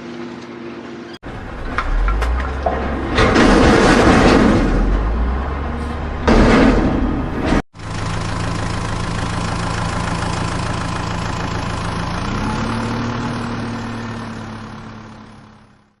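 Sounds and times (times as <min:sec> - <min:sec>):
vehicle engine idling: 0:07.8 - 0:16.0.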